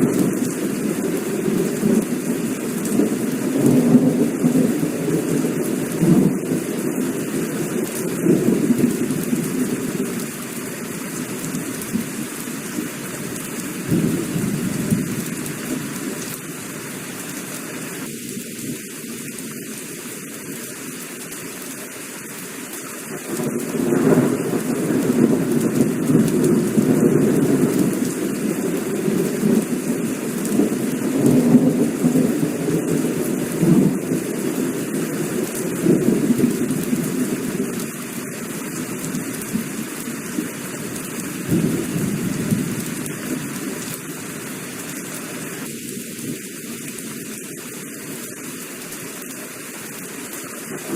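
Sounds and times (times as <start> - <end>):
thunder rumbling: 0.0 - 16.3, 23.2 - 40.5, 41.3 - 44.0
heavy rain falling: 0.0 - 50.9.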